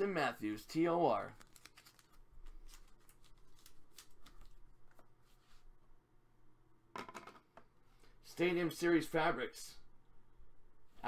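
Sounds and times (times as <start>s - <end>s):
trading cards clicking and rustling: 1.3s - 5.1s.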